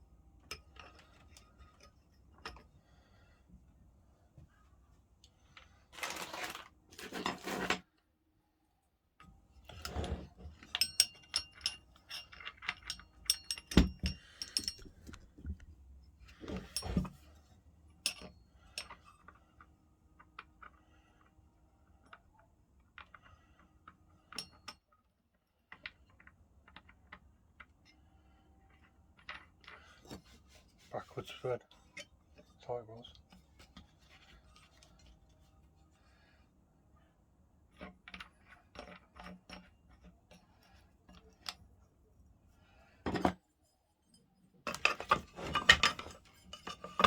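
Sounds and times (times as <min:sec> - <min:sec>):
rustling or scraping bursts: 0:05.9 - 0:07.8
small metal parts clinking: 0:09.9 - 0:15.3, 0:44.6 - 0:47.0.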